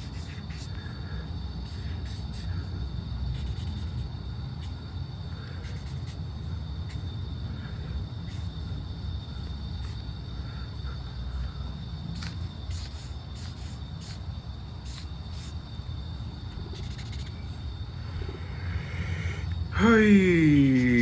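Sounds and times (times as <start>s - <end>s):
pencil scratching on paper: 0.0s - 0.8s, 1.7s - 2.6s, 3.3s - 4.8s, 5.6s - 6.2s, 12.2s - 15.6s, 16.3s - 17.7s
faint high whine: 0.0s - 21.0s.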